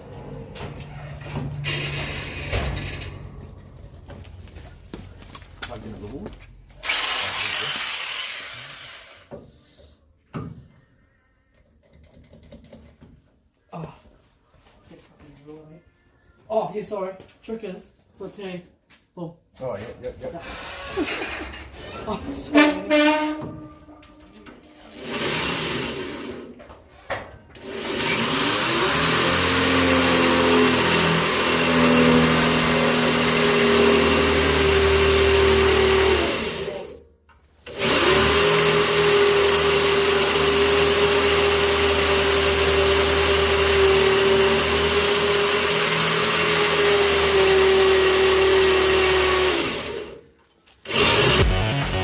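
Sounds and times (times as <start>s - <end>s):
electric motor tool whining: 6.8s - 9.3s, 27.6s - 36.9s, 37.7s - 50.2s, 50.8s - 52.0s.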